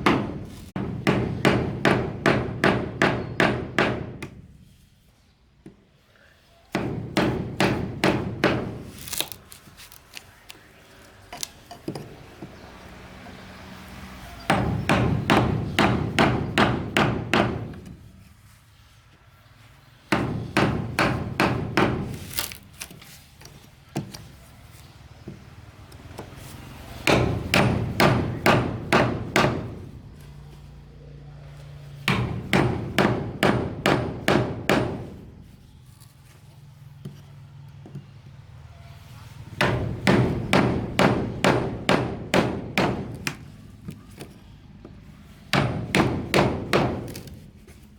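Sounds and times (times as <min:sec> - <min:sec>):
hammer driving nails into wood: 0:14.5 - 0:18.0, 0:20.1 - 0:23.0, 0:39.6 - 0:43.5, 0:45.5 - 0:47.4.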